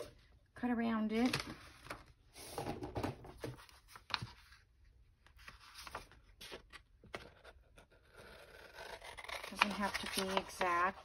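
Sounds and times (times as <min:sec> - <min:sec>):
paper rustling: 0:01.2 - 0:04.6, 0:05.3 - 0:07.5, 0:08.6 - 0:11.0
scissors snipping paper: 0:08.6 - 0:10.8.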